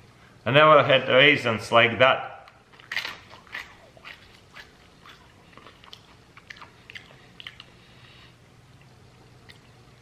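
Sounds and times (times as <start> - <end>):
crunching and chewing grapes: 2.5 - 10.0.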